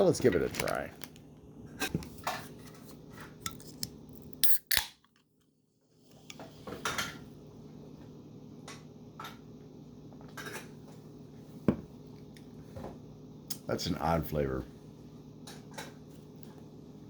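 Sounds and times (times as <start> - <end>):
can clicking and clinking: 3.5 - 5.1.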